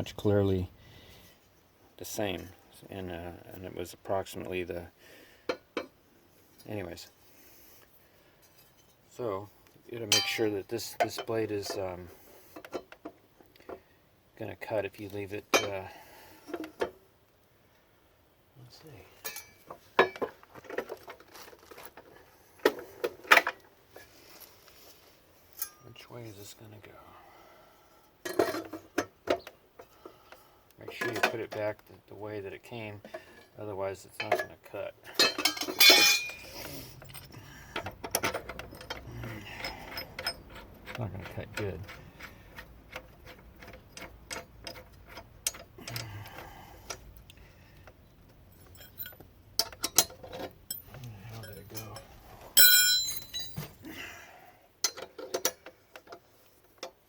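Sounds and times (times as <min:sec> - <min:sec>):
metal clanks and clinks: 0:10.1 - 0:11.9, 0:15.5 - 0:15.9, 0:19.2 - 0:21.2, 0:25.5 - 0:26.0, 0:28.2 - 0:29.4, 0:34.2 - 0:47.0, 0:48.5 - 0:53.8, 0:54.8 - 0:56.1
hand tools clicking on metal: 0:35.2 - 0:48.0, 0:48.6 - 0:53.6.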